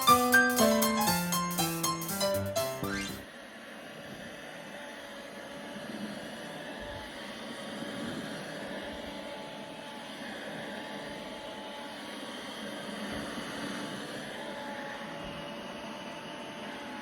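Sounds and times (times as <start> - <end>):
vacuum cleaner running: 4.8 - 17.0.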